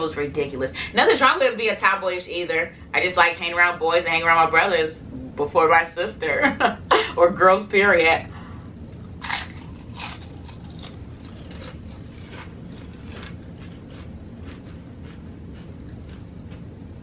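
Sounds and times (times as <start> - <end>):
person chewing: 9.2 - 16.7.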